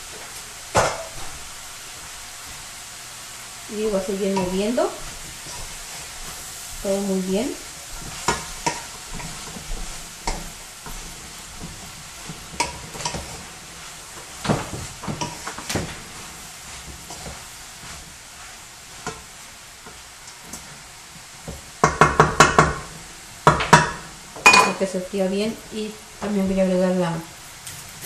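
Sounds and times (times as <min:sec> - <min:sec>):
food sizzling in a pan: 0:00.0 - 0:28.0
spoon scraping a pan: 0:04.1 - 0:06.5, 0:07.8 - 0:20.8.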